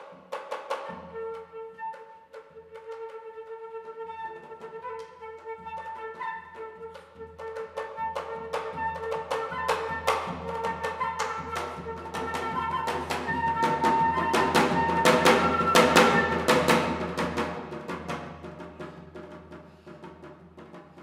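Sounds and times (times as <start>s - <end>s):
flute held notes: 0.9s - 16.9s.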